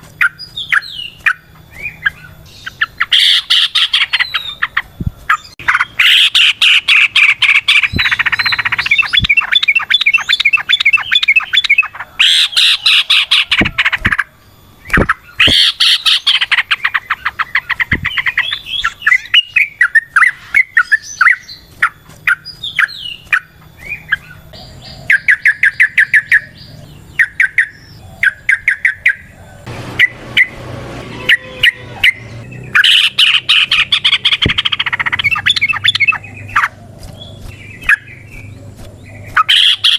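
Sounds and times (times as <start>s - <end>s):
bulbul singing chattering notes: 0.1s - 39.9s
bird short call phrases: 29.9s - 36.7s, 39.2s - 39.9s.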